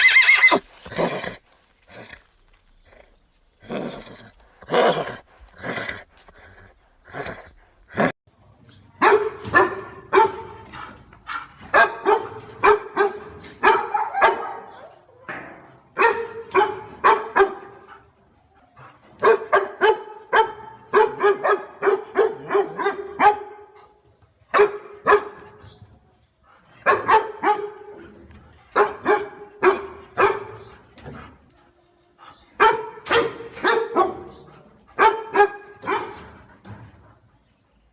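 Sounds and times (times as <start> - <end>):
dog barking: 9.0 - 10.5, 11.7 - 14.8, 16.0 - 17.9, 19.2 - 23.8, 24.5 - 25.5, 26.8 - 28.0, 28.8 - 30.7, 32.6 - 34.4, 35.0 - 36.3.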